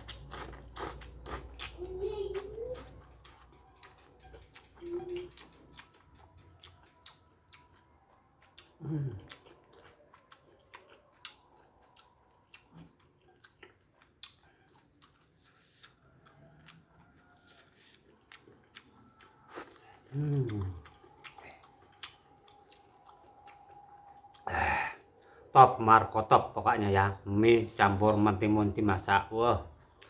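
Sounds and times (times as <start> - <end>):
chewing with mouth clicks: 0.0 - 26.2, 27.6 - 30.0
man humming: 8.8 - 9.2, 20.1 - 20.8.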